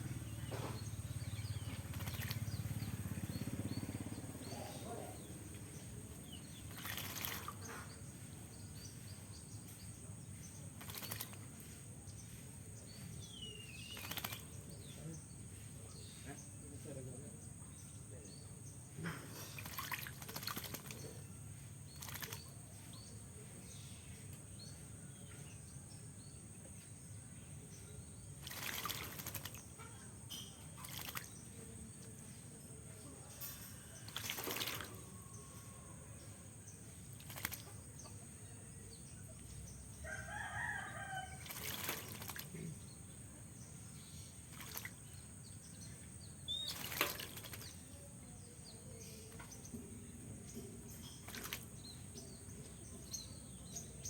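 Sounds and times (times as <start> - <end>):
water splashing: 1.6 - 2.5, 6.6 - 7.7, 10.8 - 11.6, 19.4 - 21.2, 21.9 - 22.5, 28.4 - 29.9, 30.7 - 31.6, 34.0 - 35.1, 37.1 - 37.9, 41.4 - 42.7, 44.4 - 45.1, 46.5 - 47.8, 51.2 - 51.8
bird wings flapping: 1.7 - 3.1, 6.6 - 7.6, 10.8 - 11.6, 13.9 - 14.6, 19.5 - 21.2, 21.9 - 22.5, 28.4 - 29.7, 30.8 - 31.3, 34.1 - 35.0, 37.1 - 37.8, 41.4 - 42.6, 46.6 - 47.8
rooster crowing: 40.0 - 41.6.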